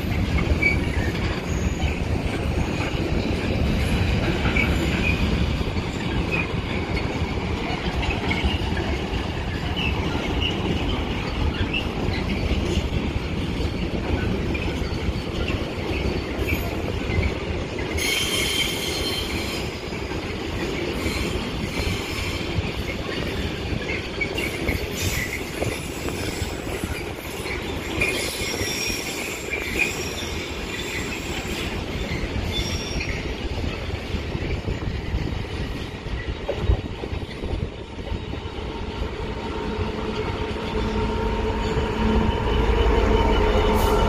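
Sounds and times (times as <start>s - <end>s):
wagon wheels rumbling on rails: 0.0s - 42.3s
high-pitched wheel squeal: 24.4s - 33.2s.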